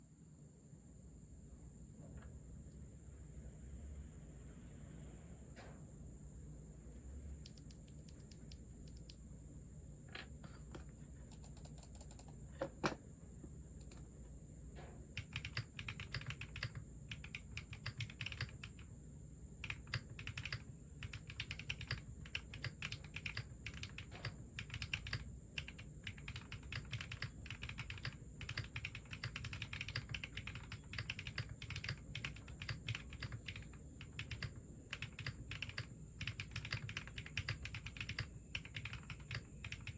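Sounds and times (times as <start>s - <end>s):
mechanical keyboard typing: 11.3s - 12.3s, 15.2s - 18.9s, 19.6s - 39.9s.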